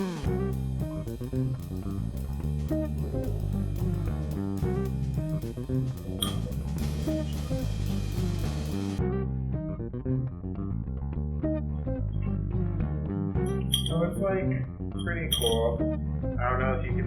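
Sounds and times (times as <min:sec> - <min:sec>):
guitar and bass music with beat: 0:00.0 - 0:17.0.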